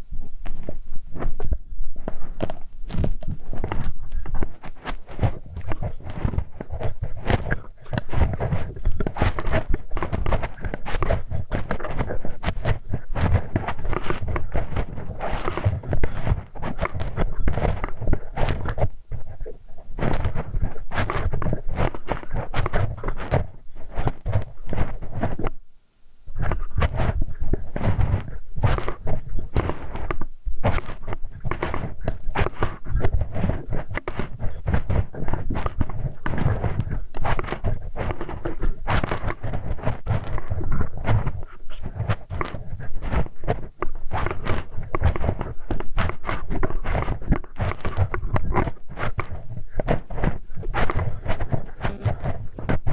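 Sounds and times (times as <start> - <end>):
metal hex key scraping microphone: 1.4 - 25.6, 26.3 - 52.9.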